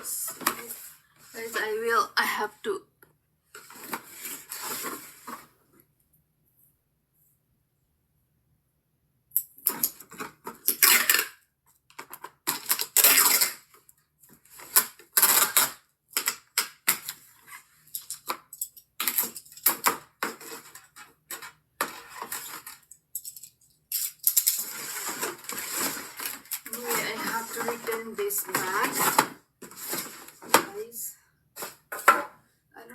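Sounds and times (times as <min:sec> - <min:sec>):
packaging rustling: 0:24.0 - 0:30.6.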